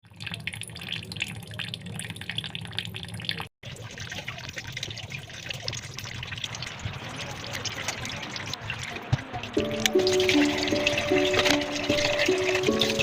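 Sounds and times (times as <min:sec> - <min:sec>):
water drips: 0:00.0 - 0:13.0
water running and splashing: 0:00.0 - 0:13.0.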